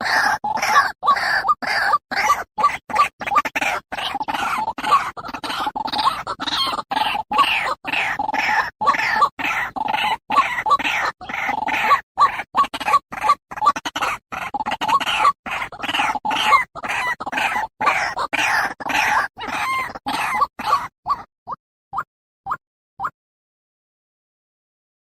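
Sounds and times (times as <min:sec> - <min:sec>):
waterhen calling: 0:06.0 - 0:21.3.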